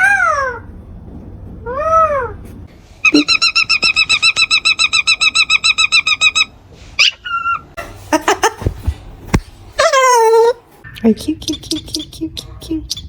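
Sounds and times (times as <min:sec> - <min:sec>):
parrot calling: 0:03.0 - 0:07.7, 0:09.8 - 0:13.0.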